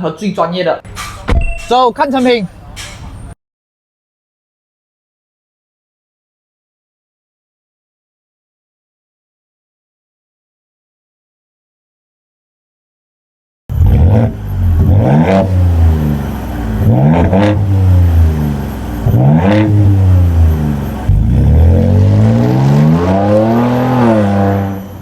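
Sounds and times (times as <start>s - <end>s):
car engine revving: 13.7s - 25.0s.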